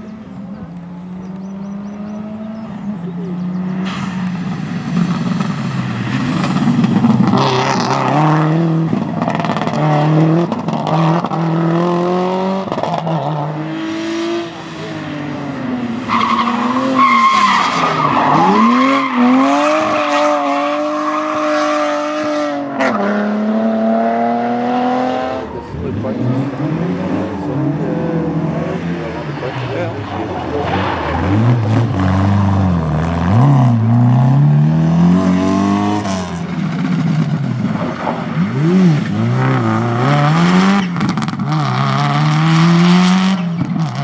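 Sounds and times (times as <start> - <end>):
rally car engine revving: 0.0 - 44.0
tyres squealing: 13.5 - 20.2.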